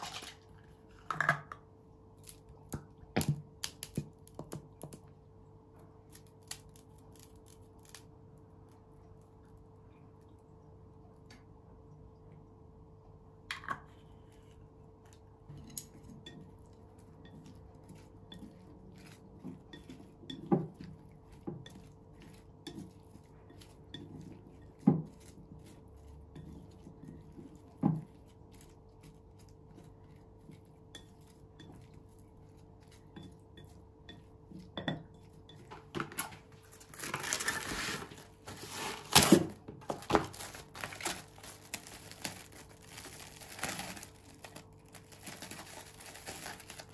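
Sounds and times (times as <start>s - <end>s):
cling wrap crinkling: 36.6s - 46.9s.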